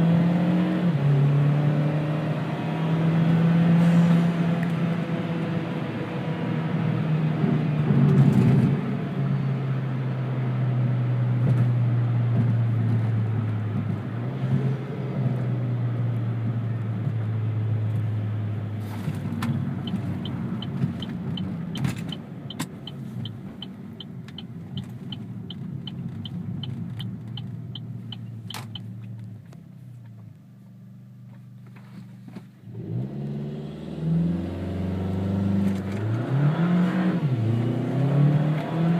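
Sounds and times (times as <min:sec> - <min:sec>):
car engine from inside cabin: 0:00.0 - 0:38.9
light regular ticking: 0:22.1 - 0:29.2.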